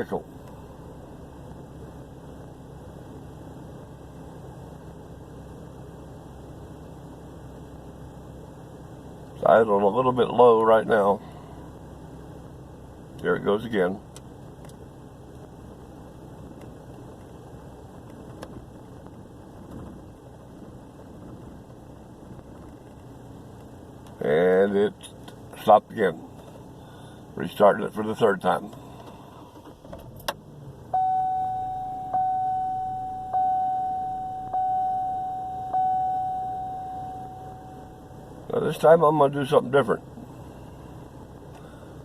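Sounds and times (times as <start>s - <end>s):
truck engine idling rough: 0.0s - 42.0s
electronic warning chime: 31.0s - 38.4s.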